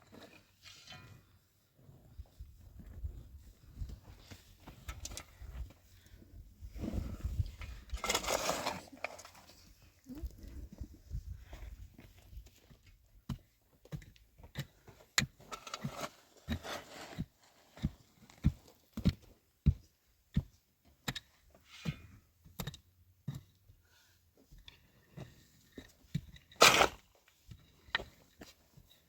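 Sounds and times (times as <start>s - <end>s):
scraping: 6.9s - 9.5s.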